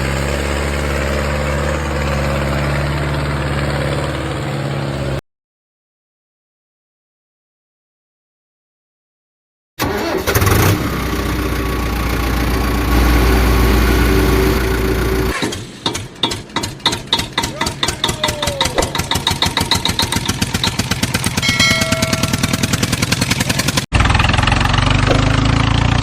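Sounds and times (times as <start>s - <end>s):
pulsing engine chug: 0.0s - 5.2s, 10.8s - 26.0s
truck engine low drone: 0.0s - 5.2s, 10.4s - 15.4s, 18.8s - 26.0s.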